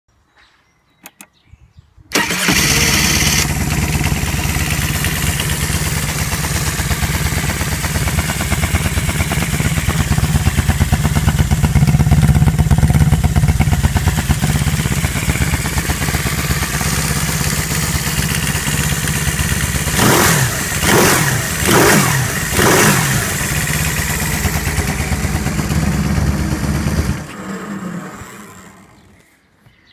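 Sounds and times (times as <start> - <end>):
faint starter clicks: 2.1 - 3.5
engine running and revving: 2.2 - 29.2.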